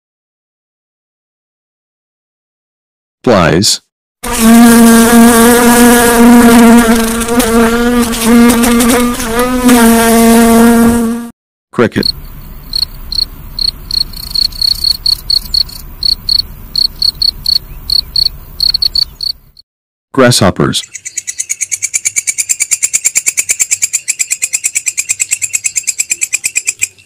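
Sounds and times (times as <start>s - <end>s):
housefly wings buzzing: 4.2s - 11.3s, 12.0s - 19.6s
cricket chirping: 12.0s - 19.6s, 21.0s - 27.0s.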